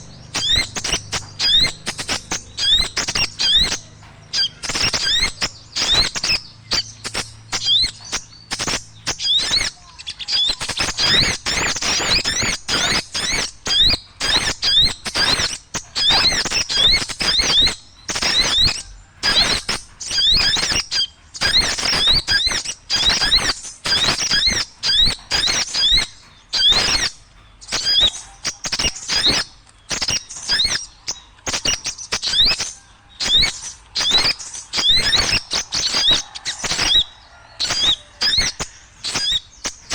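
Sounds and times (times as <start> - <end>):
small birds chattering and chirping: 0.0 - 39.9.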